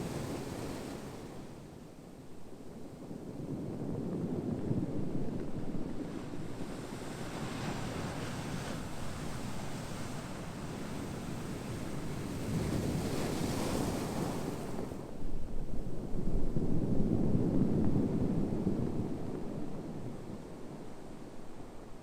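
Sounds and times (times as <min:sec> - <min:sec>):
ocean waves washing on shore: 0:00.0 - 0:01.7.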